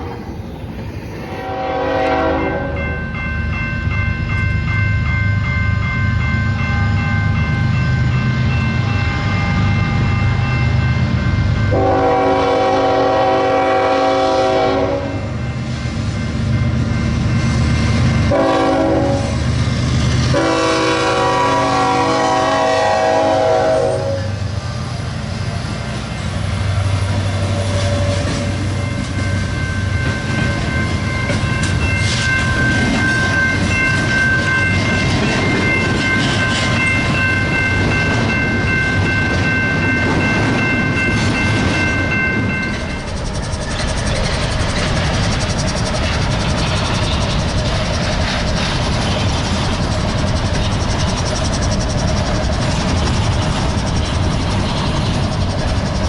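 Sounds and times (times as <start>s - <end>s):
train rumbling past: 0.0s - 56.0s
locomotive air horn: 1.3s - 2.8s, 11.7s - 15.3s, 18.3s - 19.4s, 20.3s - 24.4s
train wheel clatter: 11.7s - 56.0s
high-pitched ringing tone: 27.2s - 45.9s.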